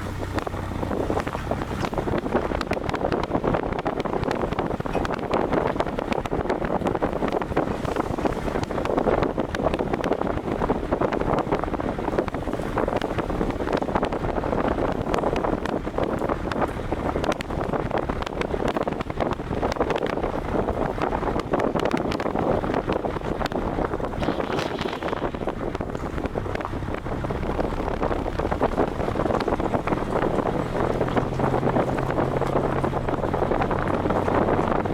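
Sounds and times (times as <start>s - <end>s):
engine and road drone: 0.0s - 34.9s
wind buffeting microphone: 0.0s - 34.9s.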